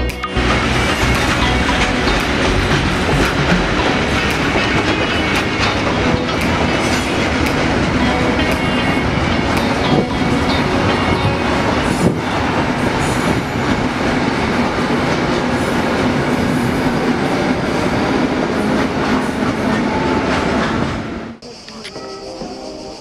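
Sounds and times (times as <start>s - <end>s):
train wheels rumbling on rail: 0.0s - 23.0s
sharp clacks of wheels: 0.4s - 8.8s.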